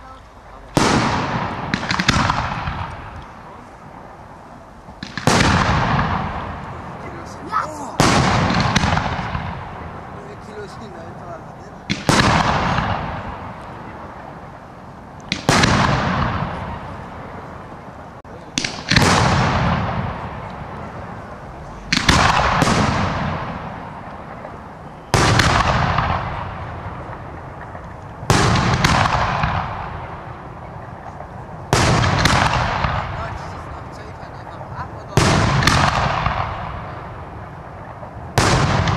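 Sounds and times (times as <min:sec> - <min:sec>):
small firework crack: 0:00.0 - 0:10.5, 0:11.8 - 0:38.9
firework bangs with echo: 0:00.6 - 0:14.7, 0:15.3 - 0:17.8, 0:18.4 - 0:38.9.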